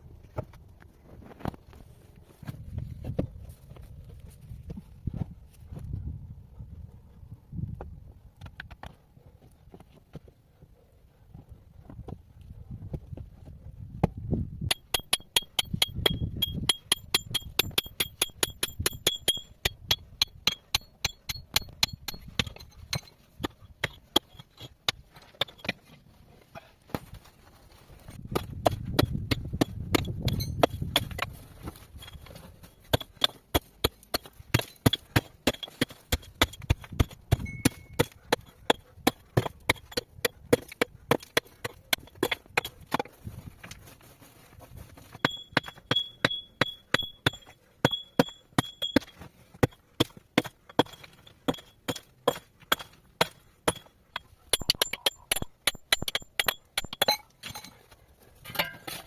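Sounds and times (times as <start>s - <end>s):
hand tool striking hard material: 14.1s - 25.8s, 28.2s - 43.8s, 45.0s - 57.8s.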